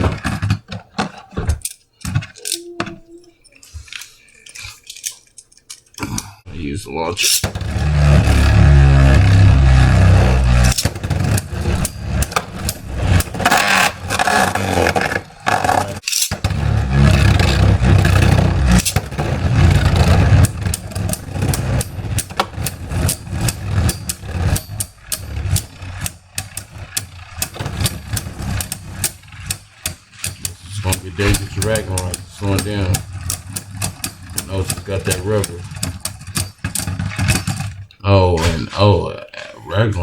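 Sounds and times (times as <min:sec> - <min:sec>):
tops clicking and clacking: 0:00.0 - 0:40.0
spinning tops whirring and scraping: 0:07.2 - 0:38.0
heavy rumble of tops clashing: 0:07.2 - 0:38.8.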